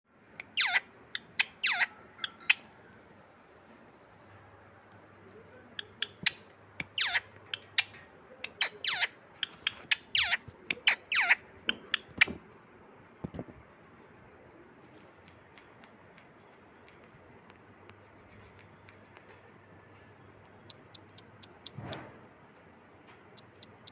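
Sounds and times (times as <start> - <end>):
parrot calling: 0.4 - 2.7, 5.8 - 12.4
sharp clicks: 20.6 - 22.1.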